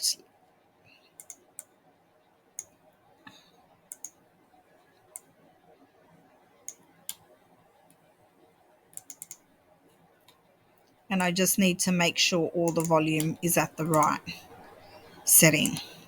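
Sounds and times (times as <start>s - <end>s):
computer mouse clicking: 1.1s - 1.8s, 2.6s - 2.8s, 3.9s - 4.2s, 5.1s - 5.4s, 6.6s - 7.3s, 8.9s - 9.5s, 12.7s - 14.4s.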